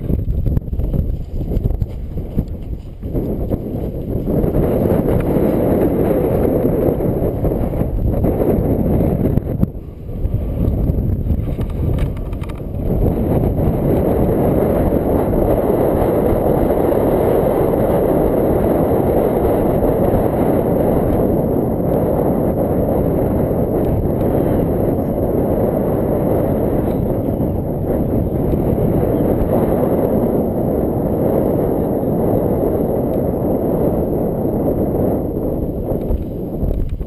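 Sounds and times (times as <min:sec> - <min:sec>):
strong wind buffeting microphone: 0:00.0 - 0:37.0.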